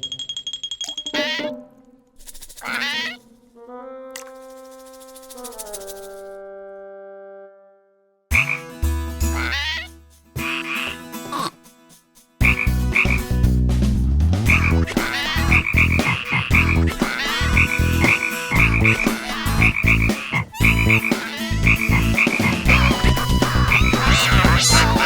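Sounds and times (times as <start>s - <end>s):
cartoon croaking: 1.1s - 1.6s, 2.3s - 3.2s, 9.3s - 11.5s, 14.5s - 25.0s.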